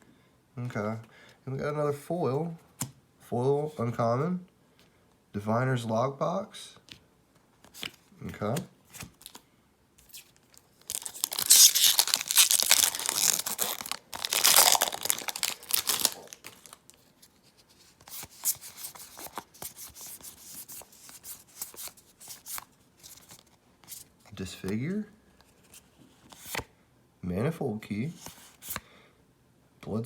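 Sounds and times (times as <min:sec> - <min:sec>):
cards clicking and rustling: 0:10.0 - 0:17.0, 0:17.8 - 0:24.0
wrapper tearing and crinkling: 0:10.1 - 0:17.0.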